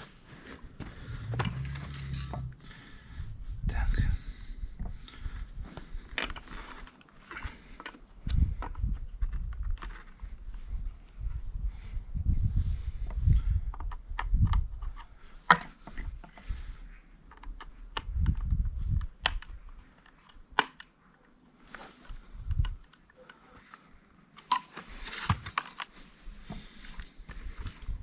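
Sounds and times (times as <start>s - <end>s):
dull low thuds: 0.8s - 1.6s.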